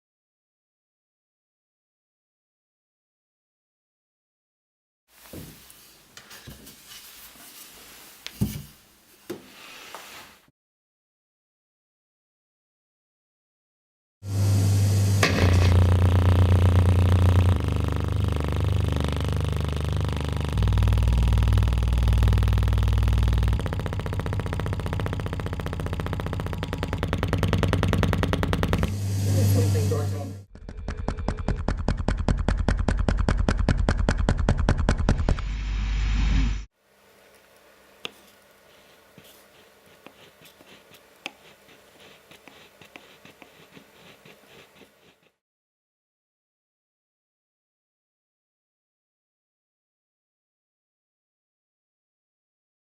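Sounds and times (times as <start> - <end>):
speaker buzzing rattle: 15.0 - 34.9
distorted low bass tones: 15.2 - 30.5.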